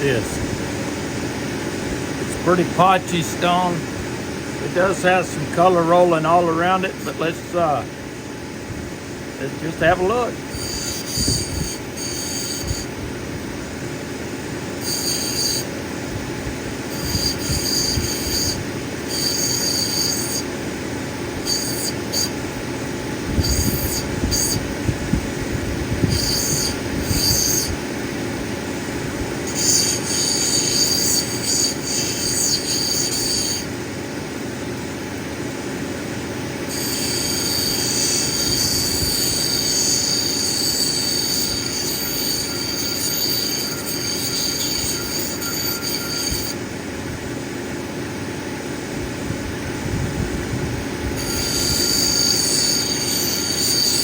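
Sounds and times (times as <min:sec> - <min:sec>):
grinding machine motor hum: 0:00.0 - 0:54.0
stone squealing against wheel: 0:09.7 - 0:13.0, 0:14.8 - 0:15.8, 0:16.9 - 0:20.6, 0:21.4 - 0:22.4, 0:23.3 - 0:24.8, 0:26.0 - 0:27.8, 0:29.4 - 0:33.7, 0:36.7 - 0:46.6, 0:51.2 - 0:54.0.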